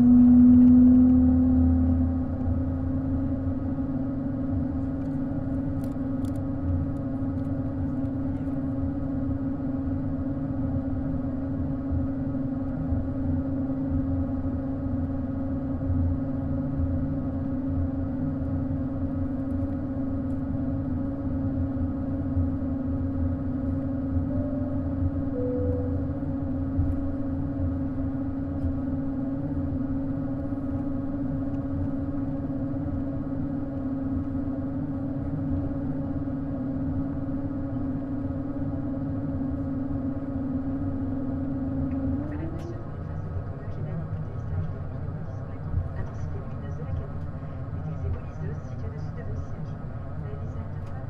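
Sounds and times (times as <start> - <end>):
low rumble: 0.0 - 8.6, 22.5 - 36.2
jet engines droning: 0.0 - 51.0.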